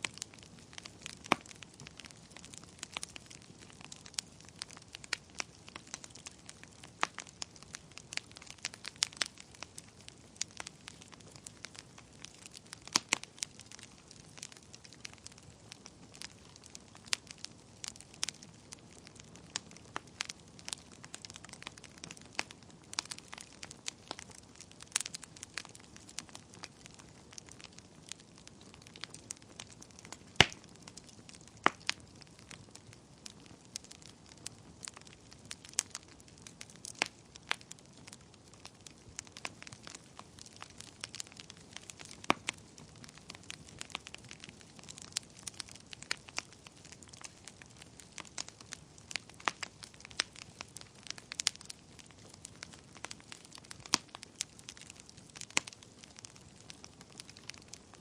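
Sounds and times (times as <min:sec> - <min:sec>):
low fire hiss: 0:00.0 - 0:58.0
wood fire crackling and popping: 0:00.0 - 0:58.0.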